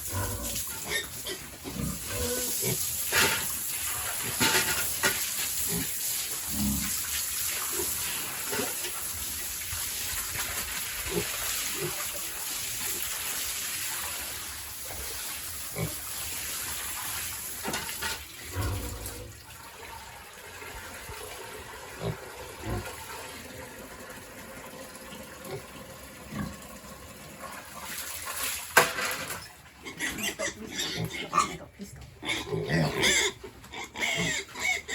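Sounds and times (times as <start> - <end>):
water spraying from a hose: 0.0 - 29.4
pig grunts: 1.7 - 2.8, 6.5 - 7.0, 30.0 - 34.9.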